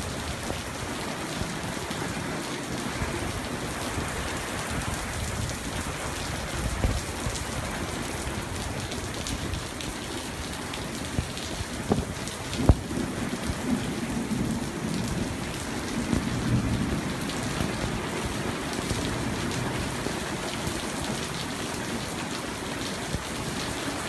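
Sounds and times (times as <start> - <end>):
steady rain falling: 0.0 - 24.0
raindrops ticking on a surface: 4.9 - 24.0.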